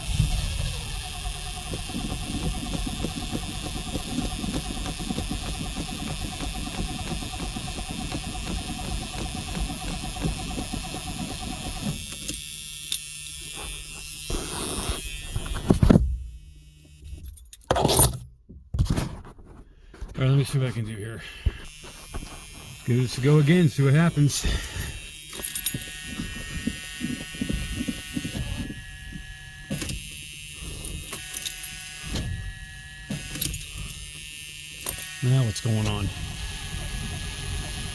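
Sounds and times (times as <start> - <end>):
engine cranking on starter: 0.0 - 12.4, 34.8 - 37.9
engine cranking by starter motor: 0.0 - 16.3, 20.5 - 37.9.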